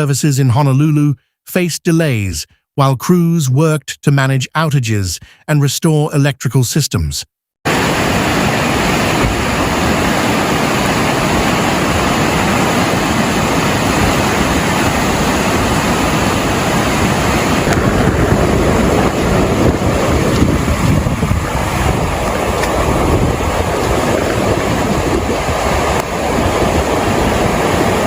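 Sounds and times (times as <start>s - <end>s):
churning water: 7.7s - 28.0s
wind buffeting microphone: 8.9s - 28.0s.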